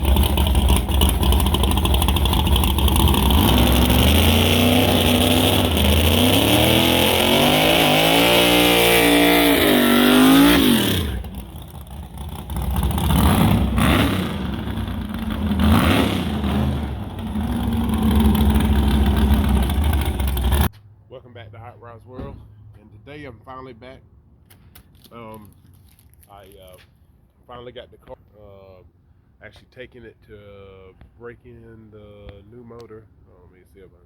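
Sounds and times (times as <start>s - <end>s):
car engine revving: 0.0s - 20.7s.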